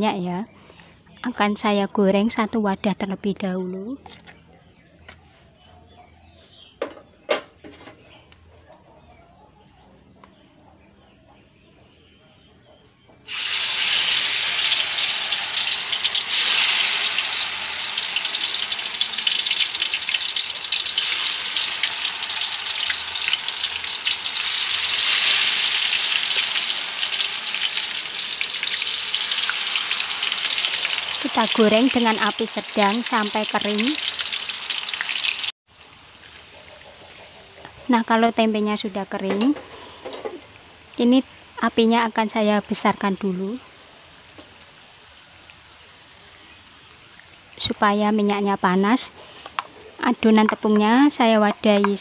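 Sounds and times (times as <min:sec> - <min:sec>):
food sizzling in hot oil: 0:13.3 - 0:36.4.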